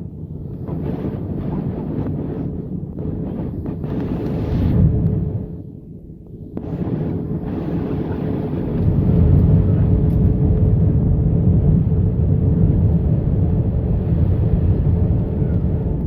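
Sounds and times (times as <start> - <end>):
aircraft cabin engine rumble: 6.6 - 16.0.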